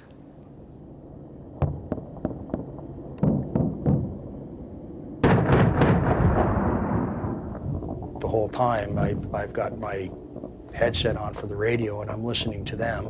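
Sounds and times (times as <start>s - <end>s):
gunshots: 5.2s - 7.3s.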